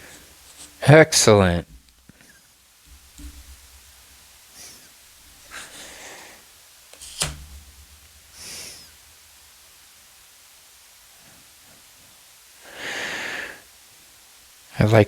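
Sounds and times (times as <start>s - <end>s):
sharp card tap: 2.9s - 3.8s, 7.0s - 8.6s
cards sliding on cards: 7.0s - 7.6s.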